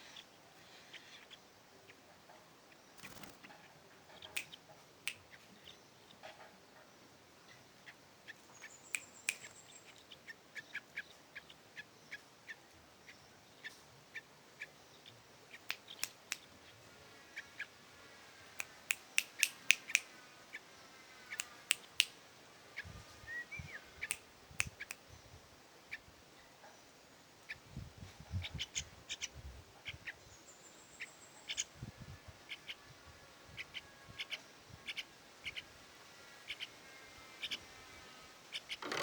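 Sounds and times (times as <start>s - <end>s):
faint thin bird chirps: 0.0s - 16.8s, 22.8s - 32.9s
bird clicks and chips: 15.5s - 16.5s, 18.6s - 20.1s.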